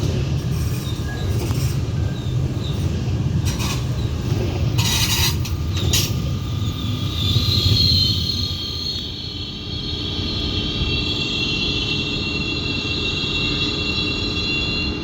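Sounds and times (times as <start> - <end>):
train rumbling: 0.0 - 15.0
high-pitched train squeal: 0.4 - 15.0.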